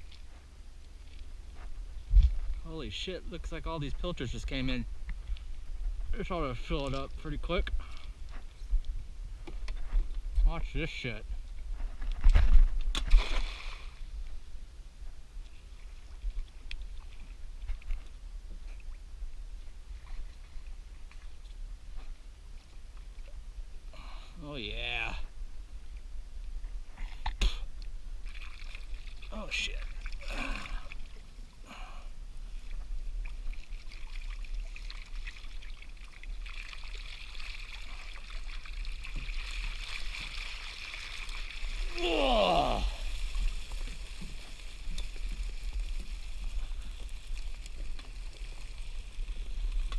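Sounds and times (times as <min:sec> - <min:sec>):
light water sounds: 0:00.0 - 0:49.9
water trickling off a net: 0:28.2 - 0:31.2, 0:33.2 - 0:49.9.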